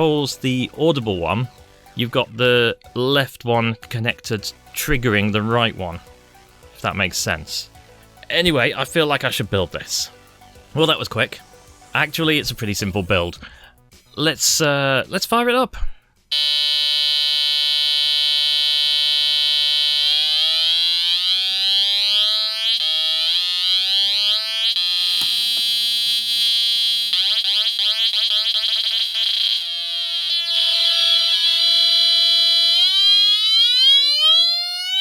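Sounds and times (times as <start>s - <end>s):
harsh buzzy synth tone: 16.3s - 35.0s.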